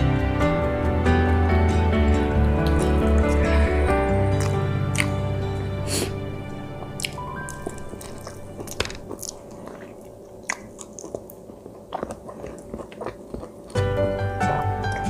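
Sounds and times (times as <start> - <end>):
background music: 0.0 - 9.8, 13.8 - 15.0
person chewing sushi: 2.6 - 6.2, 6.8 - 15.0.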